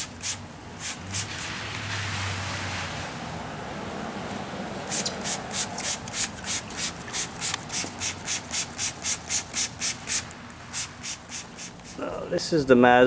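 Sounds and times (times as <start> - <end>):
faint steady hiss: 4.3 - 13.0
hand rubbing plastic lens: 4.9 - 12.5.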